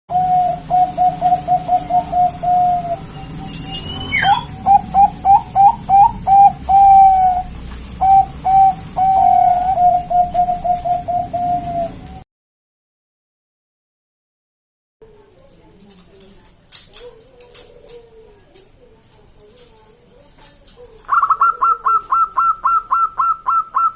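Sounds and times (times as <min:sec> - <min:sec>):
dove cooing: 0:00.1 - 0:12.2, 0:16.9 - 0:23.9
rising whistle: 0:03.1 - 0:04.6.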